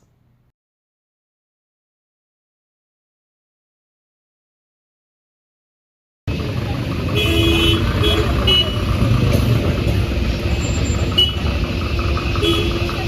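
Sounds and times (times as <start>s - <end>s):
vehicle engines rumbling: 6.3s - 13.0s.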